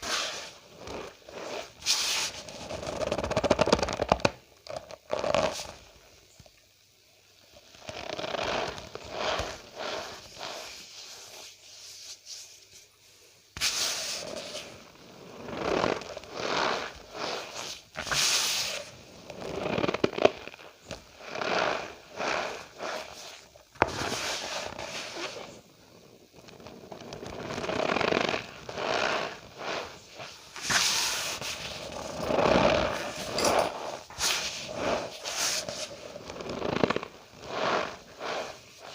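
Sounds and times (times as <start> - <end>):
cornstarch squeaking and crunching: 7.7 - 11.4, 13.6 - 25.6, 26.4 - 38.9.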